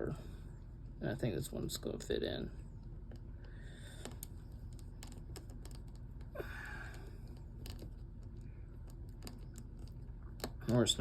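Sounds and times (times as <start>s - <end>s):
person breathing: 3.4s - 4.4s, 6.3s - 7.4s.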